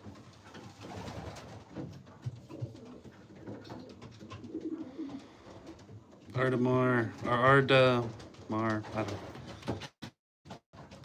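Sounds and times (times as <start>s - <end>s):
pigeons cooing: 2.4s - 6.0s.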